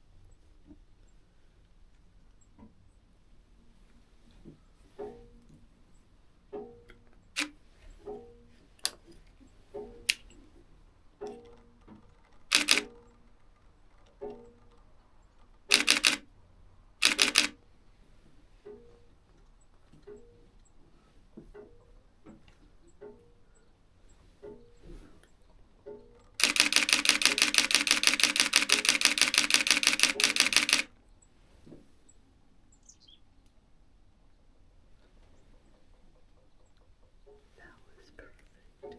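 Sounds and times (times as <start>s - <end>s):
camera shutter clicks: 7.4s - 7.6s, 12.5s - 13.0s, 15.7s - 16.3s, 17.0s - 17.6s, 26.4s - 30.9s.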